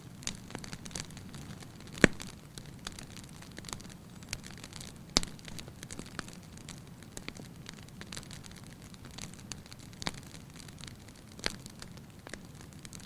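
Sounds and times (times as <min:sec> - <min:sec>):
wood fire crackling: 0:00.0 - 0:13.0
loud sharp fire pops: 0:00.2 - 0:10.4.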